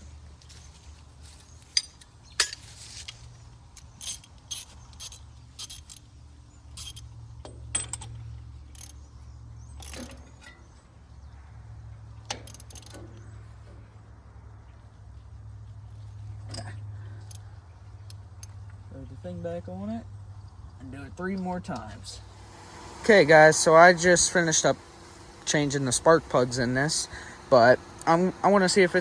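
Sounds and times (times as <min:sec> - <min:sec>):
ratchet wrench clicking: 0:03.8 - 0:07.1, 0:07.7 - 0:10.5, 0:12.2 - 0:13.2, 0:16.5 - 0:18.7.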